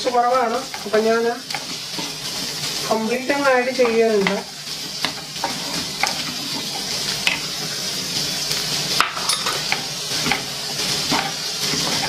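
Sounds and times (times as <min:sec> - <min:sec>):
spatula tapping and scraping pan: 0:00.0 - 0:02.6, 0:03.7 - 0:07.7, 0:08.9 - 0:12.0
vegetables sizzling in oil: 0:00.0 - 0:12.0.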